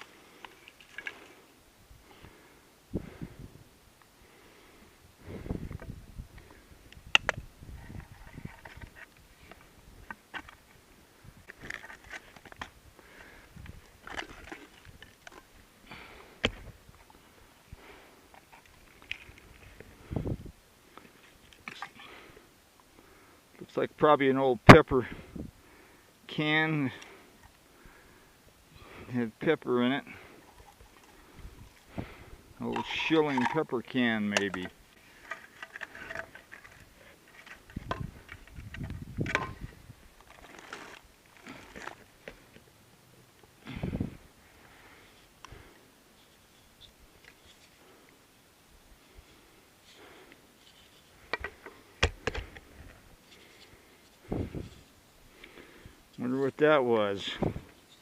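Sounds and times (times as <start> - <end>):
rustling and crunching of debris: 0.0 - 3.3, 3.9 - 23.7, 26.6 - 42.7.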